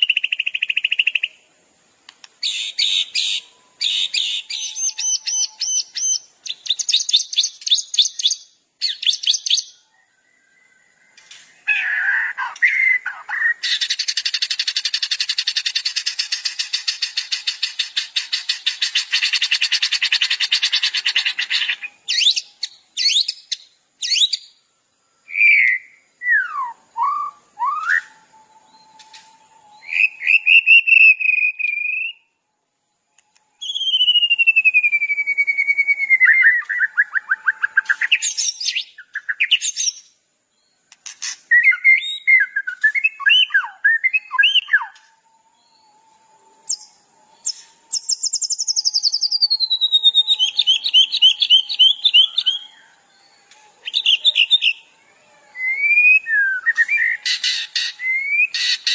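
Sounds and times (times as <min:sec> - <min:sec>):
songbirds calling: 0:00.0 - 0:58.9.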